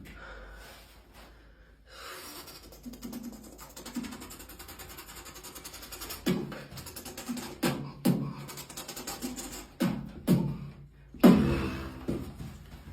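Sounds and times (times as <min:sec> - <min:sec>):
beatboxing chicken imitation: 0:02.1 - 0:12.1
fast fluttering mouth sound: 0:02.2 - 0:10.1
sharp vocal hits: 0:11.2 - 0:12.1.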